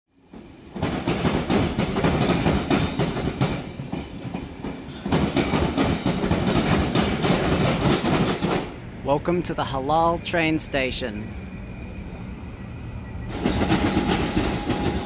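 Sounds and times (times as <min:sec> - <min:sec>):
train wheels rumbling on rails: 0:00.2 - 0:10.2, 0:11.3 - 0:15.0
wheels clacking over rail joints: 0:00.3 - 0:08.8, 0:13.3 - 0:15.0.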